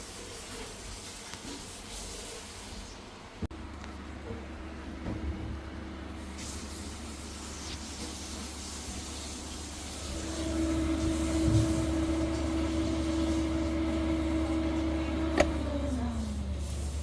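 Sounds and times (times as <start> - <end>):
refrigerator humming: 3.0 - 17.0
fridge motor humming tone: 3.2 - 17.0.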